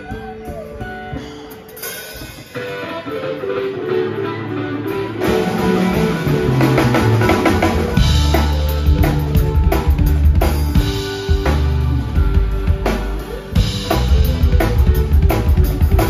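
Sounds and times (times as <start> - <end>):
bass guitar: 0.0 - 16.0
drum kit: 0.0 - 16.0
electric guitar: 0.0 - 16.0.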